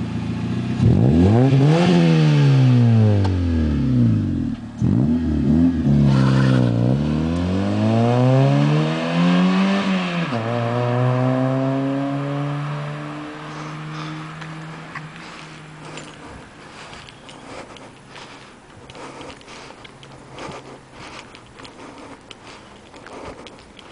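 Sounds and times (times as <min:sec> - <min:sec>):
car engine revving: 0:00.0 - 0:18.2.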